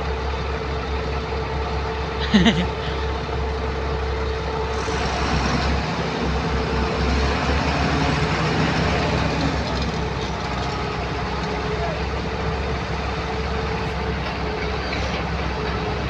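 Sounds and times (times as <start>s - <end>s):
heavy diesel engine under load: 3.2s - 16.0s.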